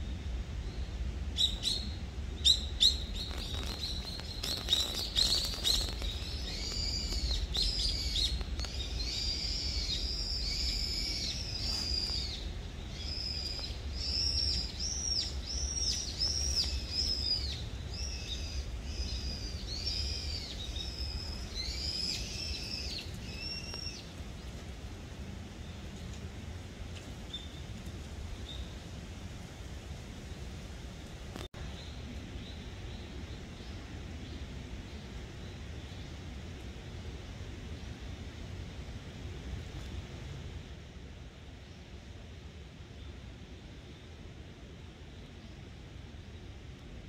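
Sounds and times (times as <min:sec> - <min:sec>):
low steady rumble: 0:00.0 - 0:47.0
songbird calling: 0:01.4 - 0:24.1.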